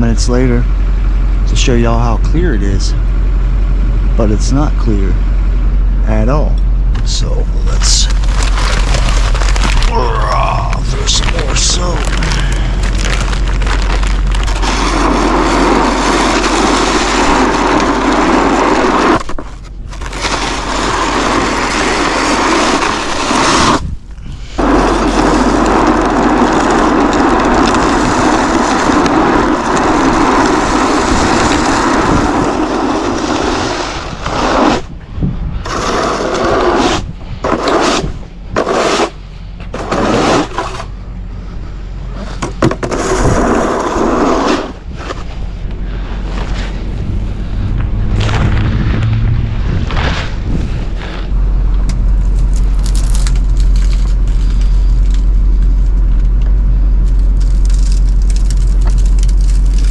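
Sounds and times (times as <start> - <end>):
low hum: 0.0 - 59.9
salt spreader throwing salt: 7.7 - 23.9, 24.5 - 34.9, 35.6 - 39.2, 39.8 - 40.9.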